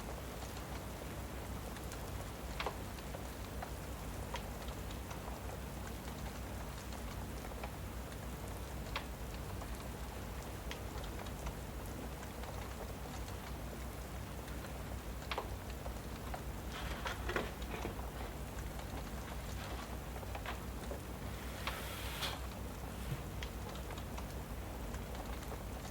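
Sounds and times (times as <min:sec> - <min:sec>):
steady rain: 0:00.0 - 0:25.9
wood fire crackling: 0:00.0 - 0:25.9.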